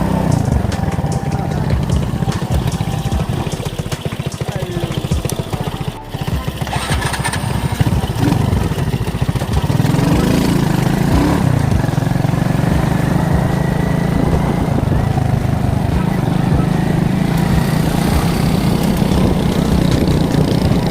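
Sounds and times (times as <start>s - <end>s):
moped engine revving: 0.0s - 20.9s.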